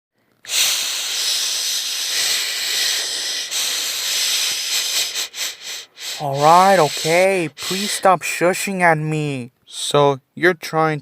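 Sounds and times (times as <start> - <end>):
person shushing: 0.5 - 8.2.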